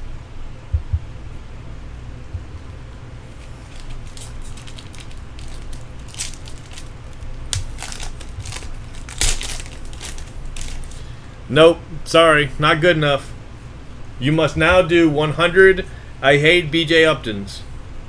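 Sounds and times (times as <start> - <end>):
crinkly wrapping crackling: 3.2 - 11.2.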